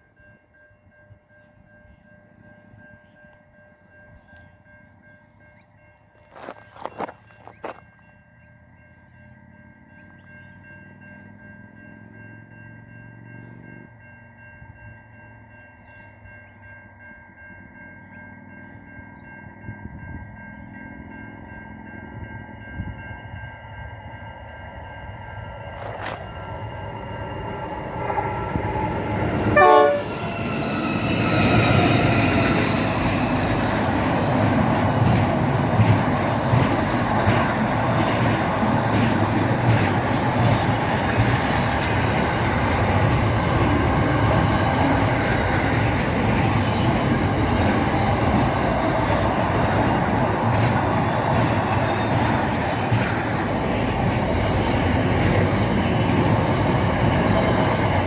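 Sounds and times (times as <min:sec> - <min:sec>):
train rumbling past: 0:00.0 - 0:58.0
train horn: 0:29.4 - 0:33.7.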